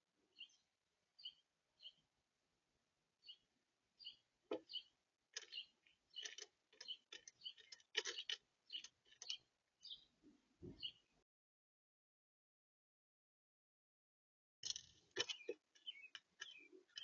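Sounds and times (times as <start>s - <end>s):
birds tapping at a feeder: 4.0s - 11.0s, 14.6s - 17.0s.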